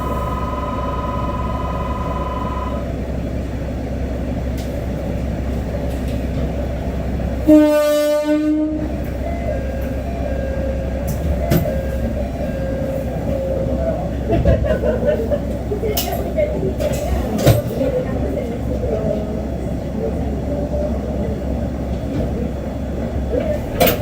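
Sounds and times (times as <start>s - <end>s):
two-note electronic tone: 0.0s - 2.9s
diesel railcar engine running: 0.0s - 24.0s
train horn blast: 7.4s - 8.9s.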